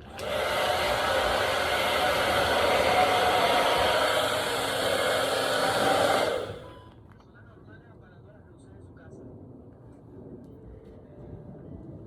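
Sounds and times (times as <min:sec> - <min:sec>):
hair dryer blowing air: 0:00.0 - 0:06.8
faint motor whine: 0:00.0 - 0:07.0.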